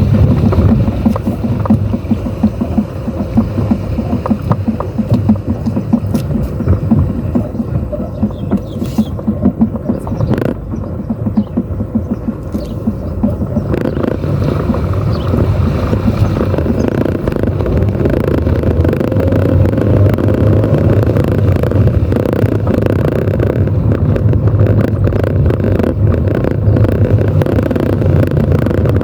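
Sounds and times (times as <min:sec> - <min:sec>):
car engine: 0:00.0 - 0:29.0
road rumble: 0:00.0 - 0:29.0.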